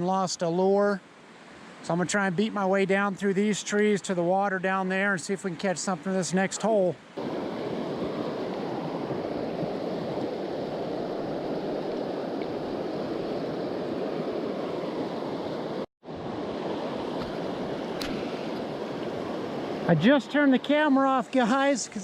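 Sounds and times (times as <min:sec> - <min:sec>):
river water rushing: 0:05.4 - 0:22.0.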